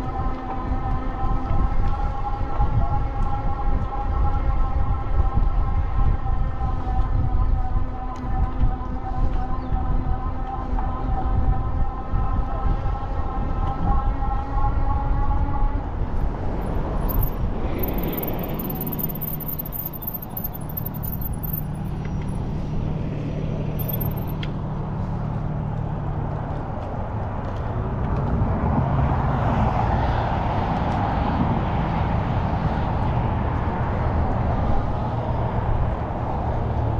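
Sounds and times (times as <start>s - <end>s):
road and wind noise: 0.0s - 36.9s.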